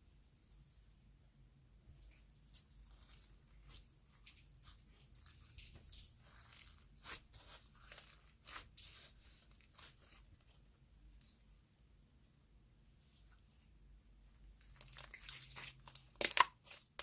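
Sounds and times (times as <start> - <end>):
clay slime crackling and tearing: 2.5 - 10.2, 14.6 - 17.0.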